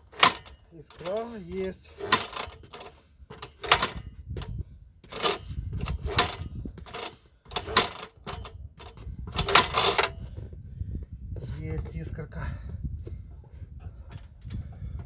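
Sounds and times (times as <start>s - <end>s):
engine turned over by hand: 0.0s - 10.5s.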